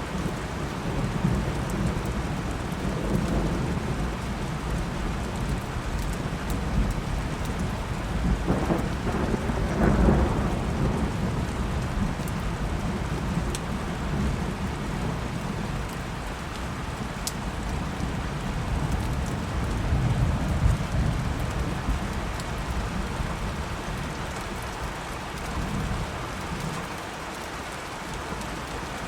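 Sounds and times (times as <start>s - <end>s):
steady rain: 0.0s - 29.0s
thunder rumbling: 0.9s - 16.0s.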